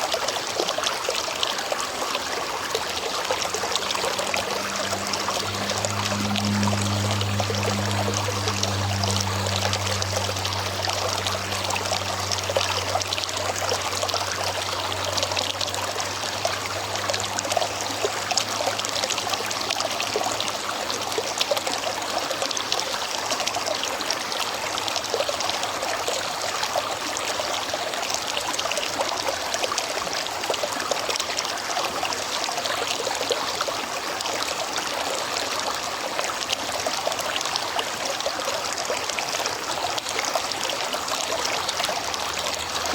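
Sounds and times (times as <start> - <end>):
river rushing over stones: 0.0 - 42.9
low steady hum: 2.3 - 22.2.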